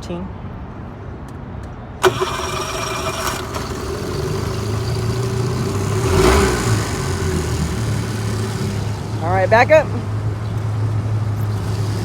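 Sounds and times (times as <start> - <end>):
electric starter cranking: 2.0 - 9.4, 11.3 - 12.0
outboard motor running: 2.0 - 12.0.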